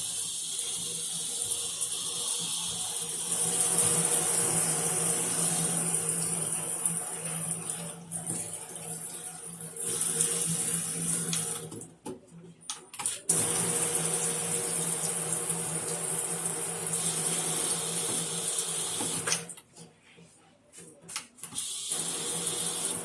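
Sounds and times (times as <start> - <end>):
water rushing through a valve: 21.6 - 23.0.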